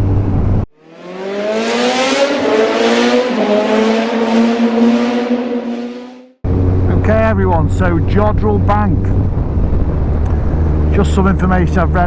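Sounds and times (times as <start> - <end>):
motorcycle engine accelerating: 0.0 - 12.0
wind rush: 6.4 - 12.0.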